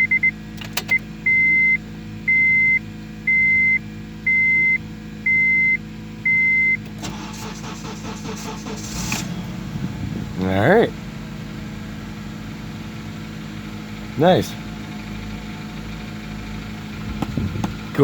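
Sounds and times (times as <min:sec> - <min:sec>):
dashboard warning chime beeping: 0:00.0 - 0:07.7
starter cranking car engine: 0:00.5 - 0:01.2, 0:06.8 - 0:18.0.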